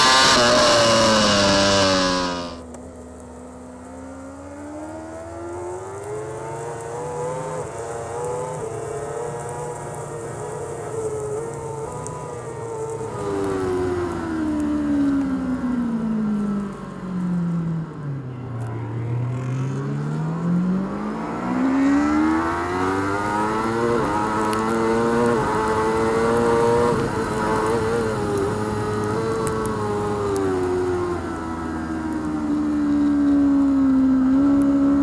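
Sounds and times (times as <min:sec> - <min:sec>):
quick gear changes: 0:00.0 - 0:02.6
superbike engine revving: 0:00.0 - 0:02.6.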